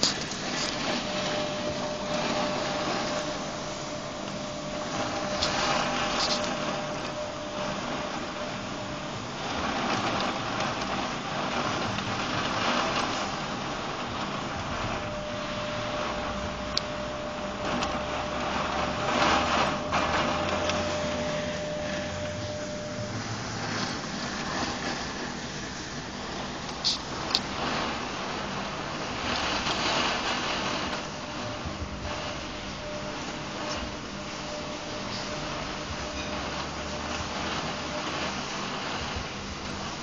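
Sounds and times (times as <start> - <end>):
steady rain: 0.0 - 40.0
faint steady tone: 14.9 - 25.4.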